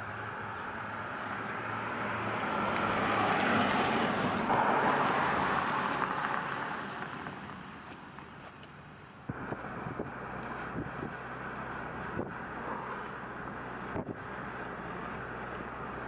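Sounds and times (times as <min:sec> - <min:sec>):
car driving past: 0:00.0 - 0:07.5.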